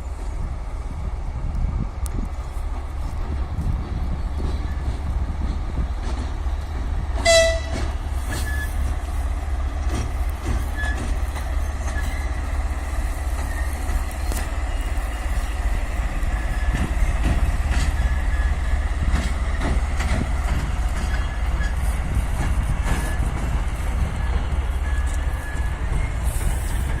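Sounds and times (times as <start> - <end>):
freight train rolling by: 0.0 - 27.0
locomotive horn toot: 7.2 - 8.8.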